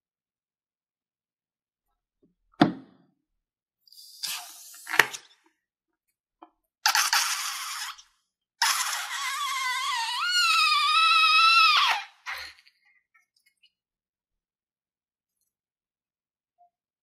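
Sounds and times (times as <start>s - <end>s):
air squealing from balloon neck: 6.8s - 12.8s.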